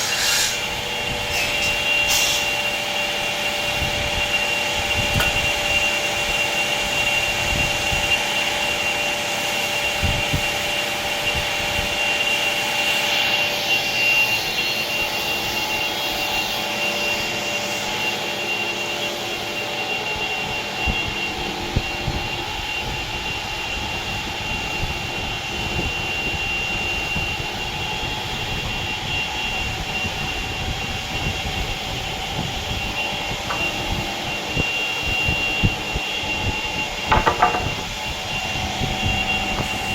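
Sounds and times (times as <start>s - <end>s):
woodworking machine whining: 31.0s - 39.9s.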